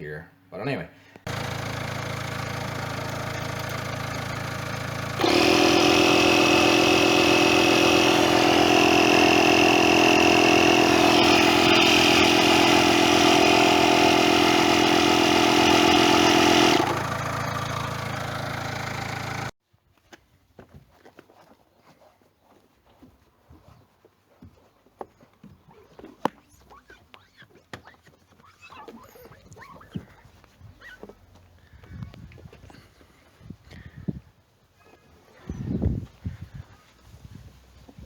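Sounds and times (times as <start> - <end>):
engine running: 1.3 - 19.6.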